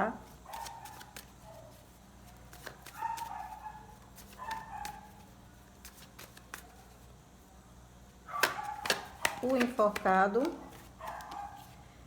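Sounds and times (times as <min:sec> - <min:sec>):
tarot cards clicking and rustling: 0:00.5 - 0:01.4, 0:02.3 - 0:07.0, 0:08.3 - 0:11.7.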